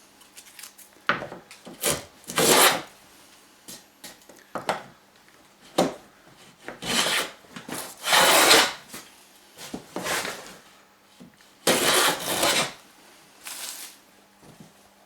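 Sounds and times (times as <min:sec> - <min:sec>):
hand tool rasping wood: 0:01.8 - 0:02.8, 0:06.8 - 0:07.3, 0:08.0 - 0:08.8, 0:11.7 - 0:12.8.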